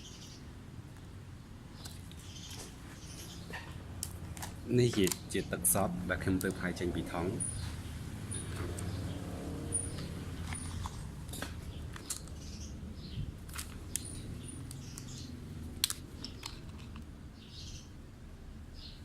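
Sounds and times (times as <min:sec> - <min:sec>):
birds chirping faintly: 0:00.0 - 0:03.8, 0:04.6 - 0:15.6, 0:16.2 - 0:18.1.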